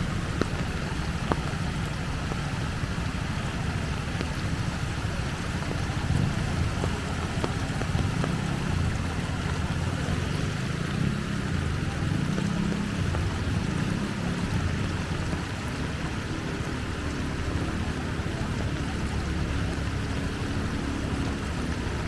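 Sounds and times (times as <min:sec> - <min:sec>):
floodwater rushing: 0:00.0 - 0:22.0
rain: 0:00.0 - 0:22.0.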